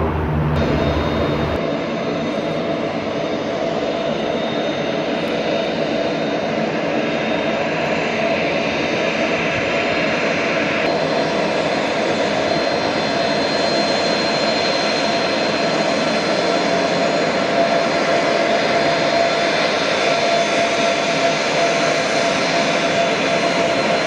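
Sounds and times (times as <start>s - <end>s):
thin high whine: 0.0s - 1.6s
aircraft engines running: 0.0s - 24.0s.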